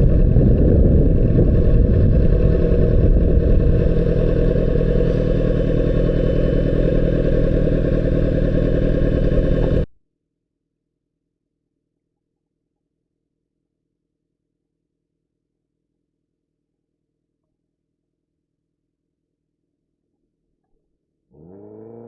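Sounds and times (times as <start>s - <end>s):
wind noise on microphone: 0.0s - 5.6s
muffled sport bike engine: 0.0s - 9.9s, 21.3s - 22.0s.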